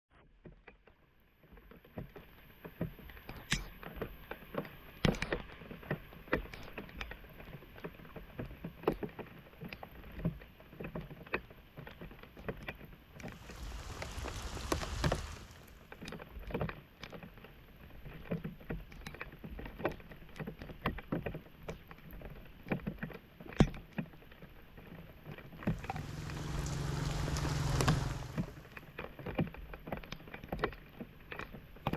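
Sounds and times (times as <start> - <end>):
floodwater splashing and sloshing: 13.3 - 15.9, 25.6 - 28.8
rush of water: 13.3 - 15.9, 25.6 - 28.8.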